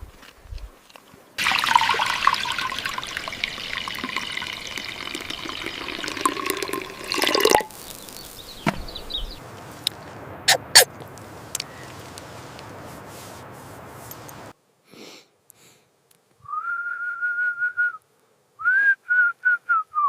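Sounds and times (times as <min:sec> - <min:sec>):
water running: 0:01.4 - 0:09.1.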